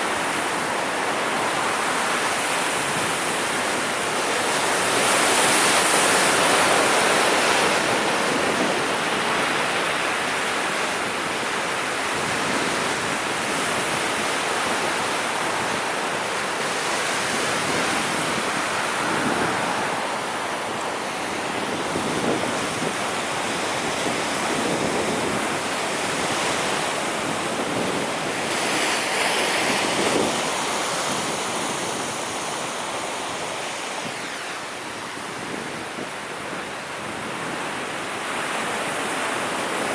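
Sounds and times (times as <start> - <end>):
sea waves breaking on shore: 0.0 - 39.9
wind buffeting microphone: 12.0 - 33.4.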